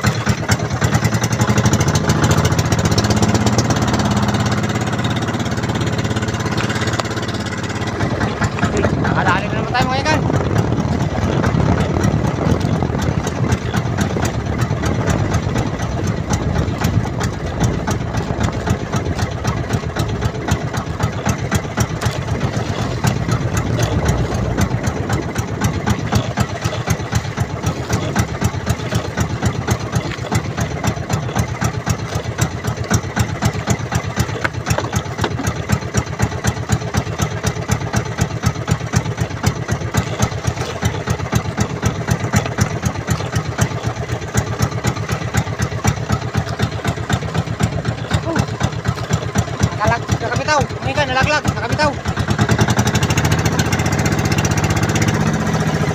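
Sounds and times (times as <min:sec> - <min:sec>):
boat engine running: 0:00.0 - 0:55.9.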